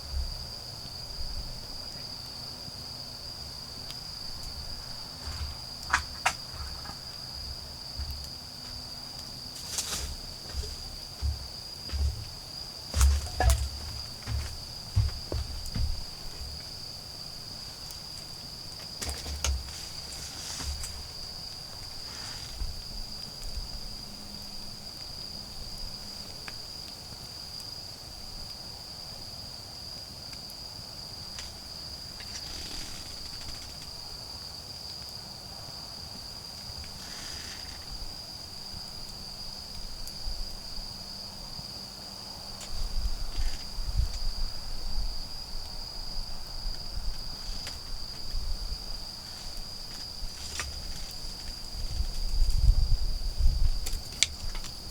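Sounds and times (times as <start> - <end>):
insects trilling: 0.0 - 54.9
low rustling and knocking: 9.5 - 16.7, 19.0 - 21.2.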